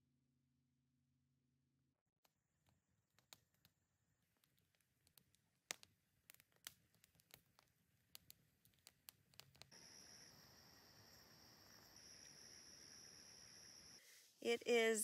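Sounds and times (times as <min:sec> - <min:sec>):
campfire crackling and popping: 0:02.6 - 0:14.0.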